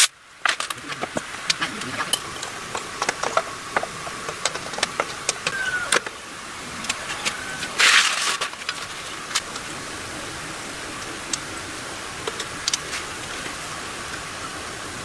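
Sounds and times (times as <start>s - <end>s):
steady hiss: 0.0s - 15.0s
sharp ticks and clicks: 10.9s - 14.3s.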